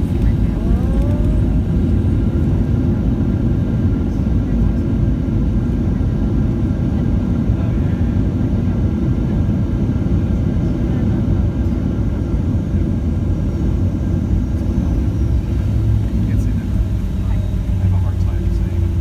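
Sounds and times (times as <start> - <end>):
faint whining tones: 0.0 - 2.7, 12.6 - 19.0
airliner low rumble: 0.0 - 19.0.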